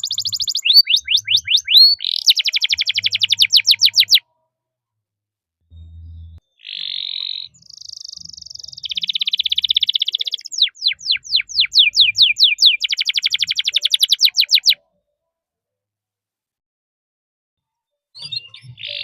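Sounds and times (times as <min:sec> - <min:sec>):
canary singing trills: 0:00.0 - 0:04.3, 0:05.9 - 0:14.8, 0:18.2 - 0:19.0.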